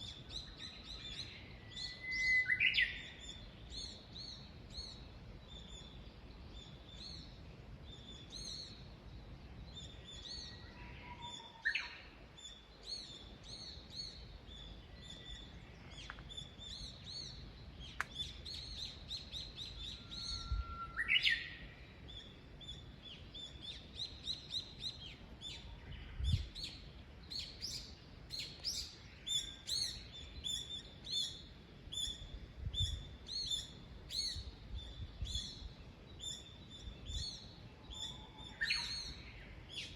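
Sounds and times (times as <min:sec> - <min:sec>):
songbirds chirping: 0:00.0 - 0:39.9
rising bird whistle: 0:19.7 - 0:21.6.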